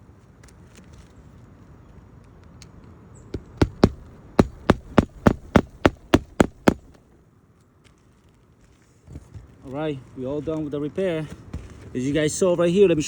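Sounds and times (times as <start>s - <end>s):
hammer driving nails: 3.4s - 7.0s.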